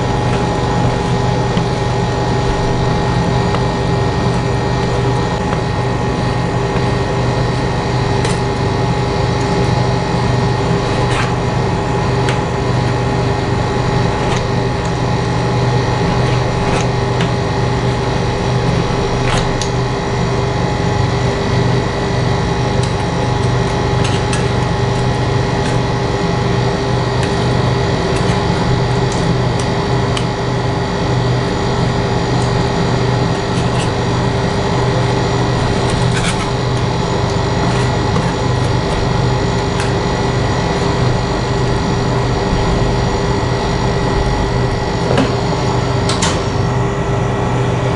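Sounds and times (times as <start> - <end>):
cooking equipment humming: 0.0 - 47.9.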